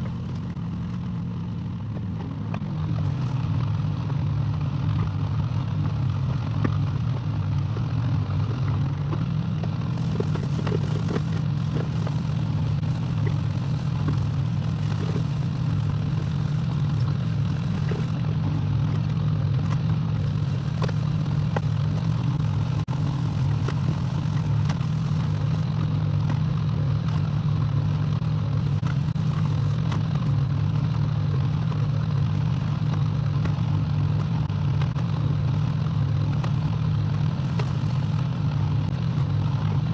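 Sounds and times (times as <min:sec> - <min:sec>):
diesel engine running: 0:00.0 - 0:39.9
machine clicks and clatter: 0:09.9 - 0:18.2, 0:20.2 - 0:25.7, 0:28.6 - 0:30.0, 0:37.4 - 0:38.2.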